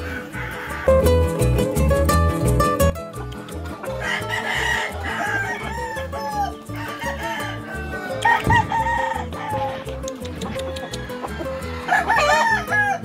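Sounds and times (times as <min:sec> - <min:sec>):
roosters crowing: 0:00.0 - 0:01.2, 0:03.8 - 0:13.0
background music with beat: 0:00.8 - 0:05.2, 0:06.3 - 0:12.0.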